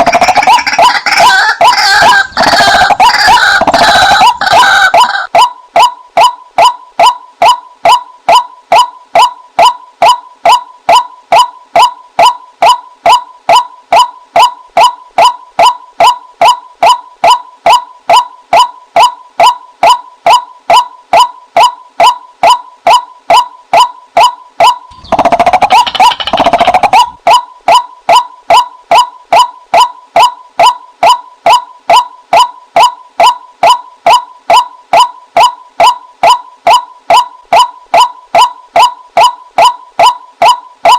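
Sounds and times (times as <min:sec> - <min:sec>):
waterhen calls: 0:00.0 - 0:05.4, 0:24.9 - 0:27.8.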